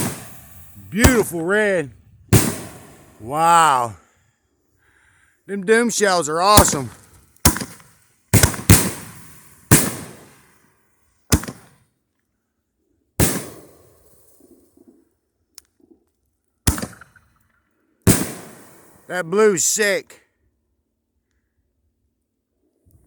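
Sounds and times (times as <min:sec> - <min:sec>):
firework shells booming: 0:00.0 - 0:03.2, 0:06.5 - 0:10.4, 0:11.3 - 0:11.7.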